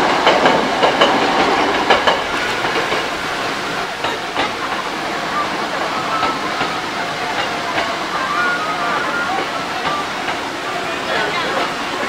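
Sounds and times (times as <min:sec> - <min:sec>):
train wheels clacking over rail joints: 0:00.0 - 0:08.2, 0:09.0 - 0:12.0
train running past: 0:00.0 - 0:12.0.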